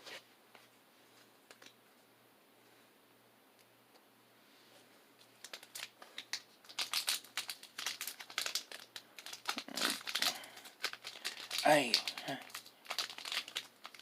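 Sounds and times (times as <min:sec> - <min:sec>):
foil wrapper crinkling and tearing: 0:05.4 - 0:14.0.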